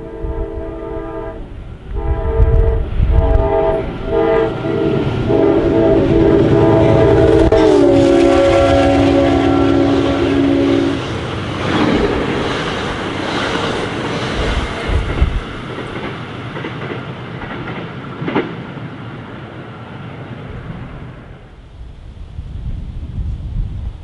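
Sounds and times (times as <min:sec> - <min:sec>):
train horn blast: 0:00.0 - 0:11.3
train rumbling and clattering by: 0:00.0 - 0:24.0.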